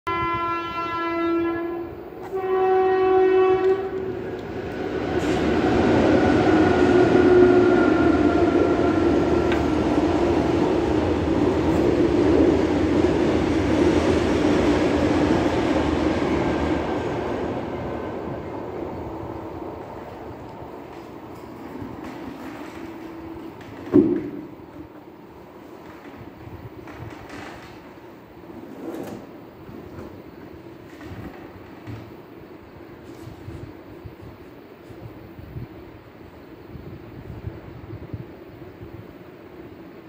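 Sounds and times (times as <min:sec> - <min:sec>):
train horn blasts: 0:00.1 - 0:04.1, 0:07.0 - 0:08.0
train passing rumble: 0:00.1 - 0:40.0.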